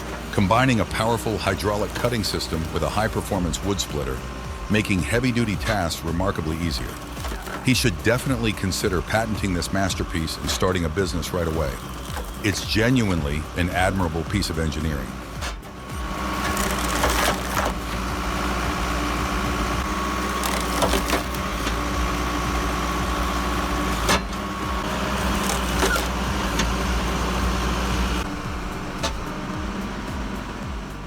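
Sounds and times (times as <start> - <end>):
logs cracking and splintering: 0.0 - 31.0
motor humming: 0.0 - 31.0.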